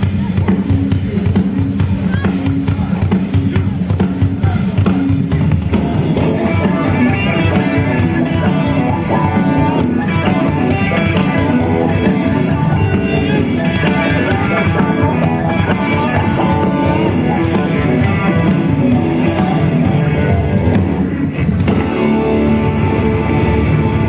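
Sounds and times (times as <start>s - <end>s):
live rock band playing: 0.0s - 24.0s
quick melodic guitar notes: 6.0s - 24.0s.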